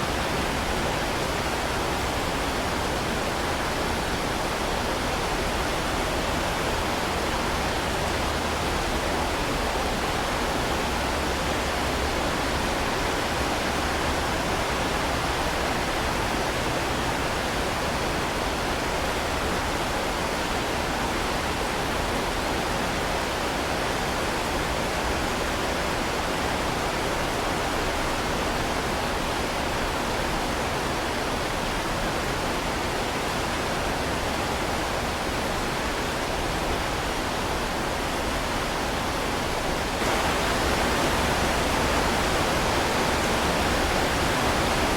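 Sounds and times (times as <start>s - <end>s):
heavy rain falling: 34.5s - 44.9s.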